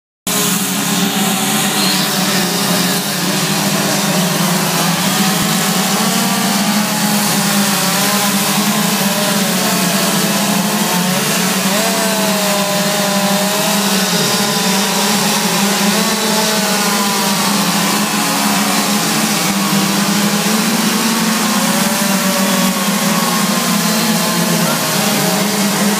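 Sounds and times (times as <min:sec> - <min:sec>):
chainsaw carving wood: 0:00.3 - 0:25.9.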